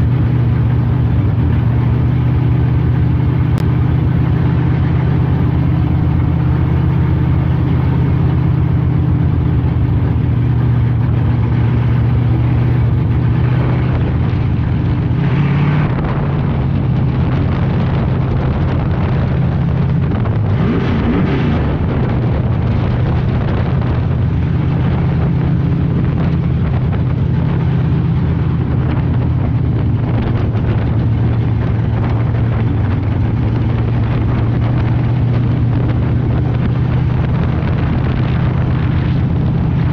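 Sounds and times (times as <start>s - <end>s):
race car engine running: 0.0s - 39.9s.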